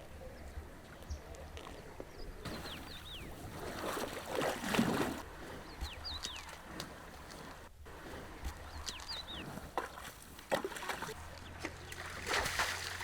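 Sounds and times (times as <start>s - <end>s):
small birds chirping: 0.2s - 4.5s, 5.1s - 10.2s.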